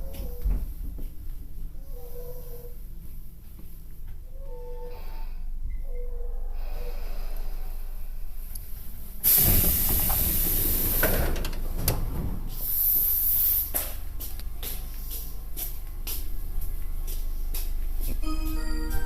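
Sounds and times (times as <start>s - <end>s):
low steady hum: 0.0s - 19.0s
loud hiss of rushing air: 9.2s - 11.2s, 12.5s - 13.9s.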